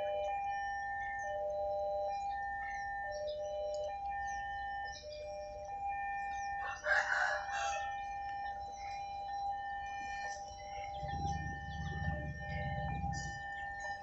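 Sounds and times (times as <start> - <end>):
level-crossing warning bell: 0.0 - 14.0
rooster crowing: 6.6 - 8.2
low rumble: 11.0 - 13.6.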